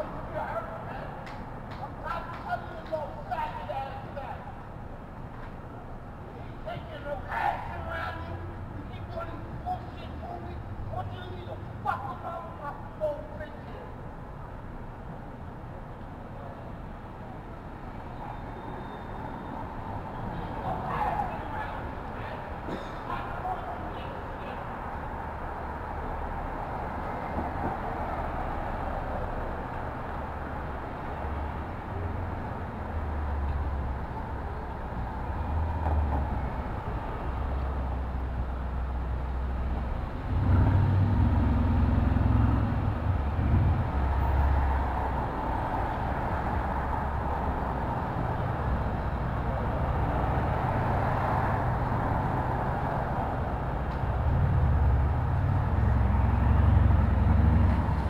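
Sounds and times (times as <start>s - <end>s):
street traffic rumble: 0.0s - 58.0s
heavy vehicle passing: 24.8s - 58.0s.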